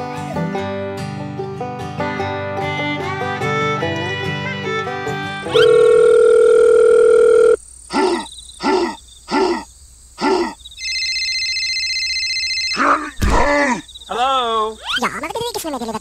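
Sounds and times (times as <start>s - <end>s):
short telephone tones: 5.5s - 7.6s
telephone dial tone: 5.5s - 7.6s, 10.8s - 12.8s
telephone ringing tone: 5.5s - 7.6s, 10.8s - 13.0s.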